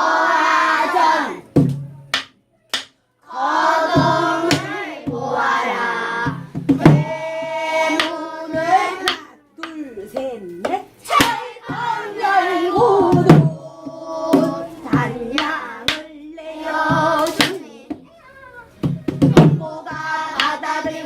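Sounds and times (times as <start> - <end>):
children singing together: 0.0 - 1.4, 3.2 - 9.3, 11.1 - 18.1, 19.1 - 21.0
sharp percussive strikes: 6.3 - 9.8.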